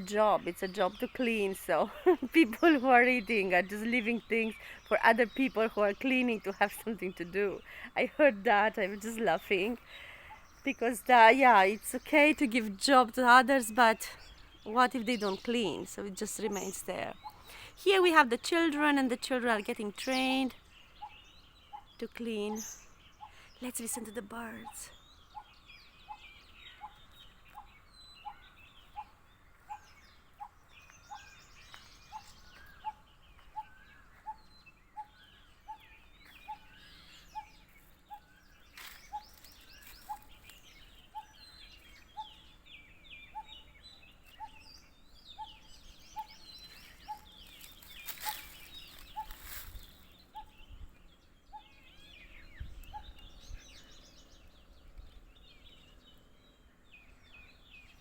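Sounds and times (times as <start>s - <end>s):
birds chirping and twittering: 0.0s - 58.0s.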